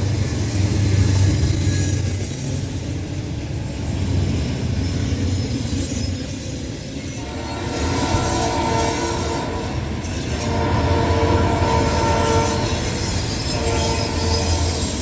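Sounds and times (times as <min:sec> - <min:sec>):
diesel engine and train rumble: 0:00.0 - 0:15.0
locomotive air horn blasts: 0:07.2 - 0:15.0.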